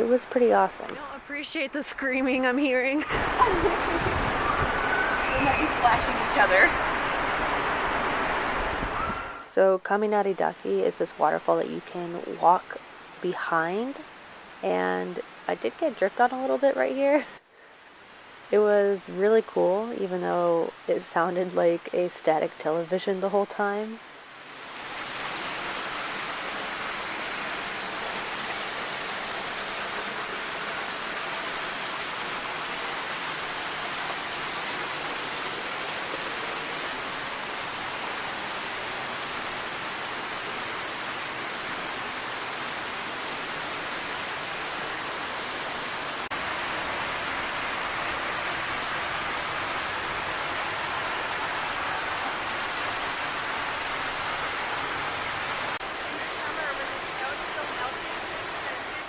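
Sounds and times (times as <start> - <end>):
waterfall rushing: 3.1 - 9.4, 24.4 - 59.0.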